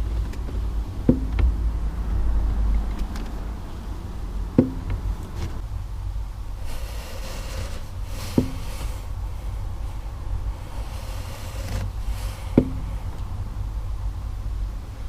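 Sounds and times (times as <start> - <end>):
diesel engine idling: 0.0 - 15.0
sharp knocks with low ring: 1.0 - 1.7, 4.6 - 5.2, 12.6 - 13.0.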